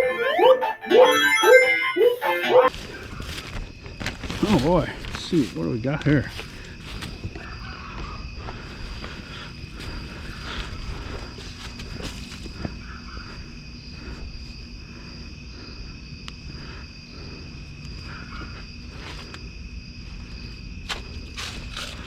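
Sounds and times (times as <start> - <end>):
items rustling in a dumpster: 2.7 - 12.7, 20.8 - 22.0
insect trill: 2.7 - 22.0.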